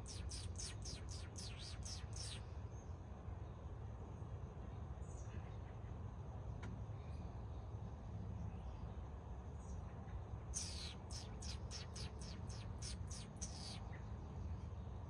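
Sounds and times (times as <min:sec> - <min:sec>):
small bird chipping: 0:00.0 - 0:02.5, 0:10.5 - 0:14.1
steady low rumble: 0:00.0 - 0:05.4, 0:06.1 - 0:15.0.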